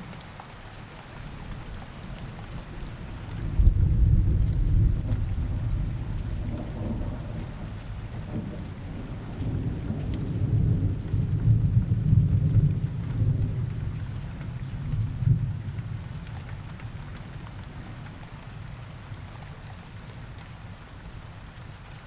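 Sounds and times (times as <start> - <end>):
steady rain: 0.0 - 22.0
rolling thunder: 3.4 - 14.0.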